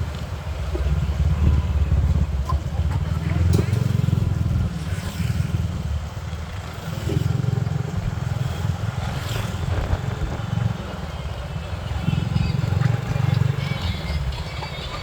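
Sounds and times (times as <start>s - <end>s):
small motorbike running: 0.0s - 15.0s
wind buffeting microphone: 7.1s - 13.4s.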